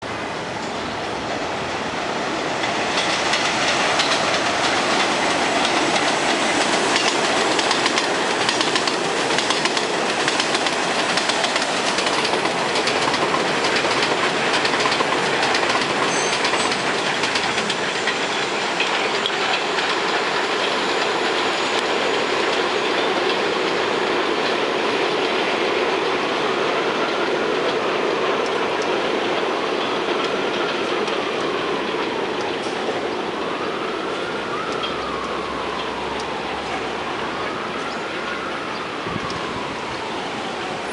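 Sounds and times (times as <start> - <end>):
train wheels on rails: 0.0 - 40.9
clacking over rail joints: 2.4 - 24.6.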